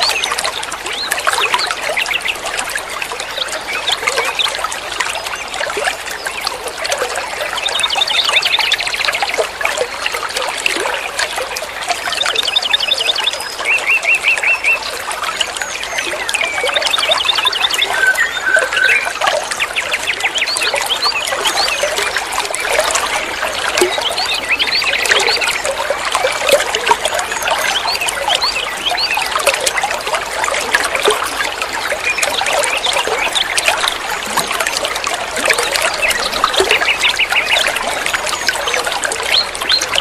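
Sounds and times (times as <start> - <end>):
water trickling and gurgling: 0.0 - 40.0
small birds chirping: 15.6 - 22.1.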